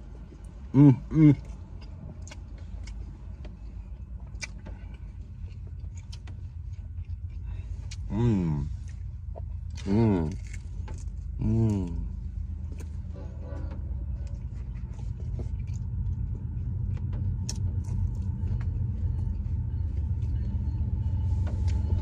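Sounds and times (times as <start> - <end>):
closed-mouth hum: 0.0 - 22.0
low rumble: 0.0 - 22.0
man chewing crunchy food: 0.0 - 22.0.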